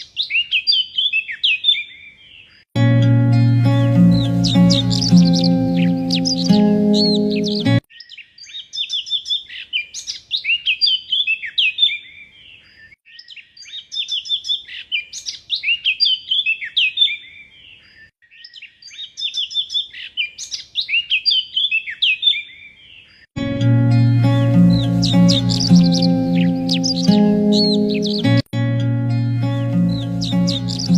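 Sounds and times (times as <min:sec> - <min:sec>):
songbird chirps and whistles: 0:03.0 - 0:12.2, 0:23.4 - 0:30.9.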